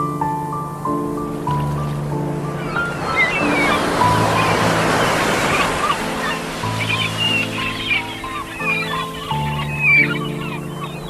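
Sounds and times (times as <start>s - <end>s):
ocean waves washing ashore: 0.0s - 11.0s
soft music pad: 0.0s - 11.0s
faint seagull cries: 2.5s - 11.0s.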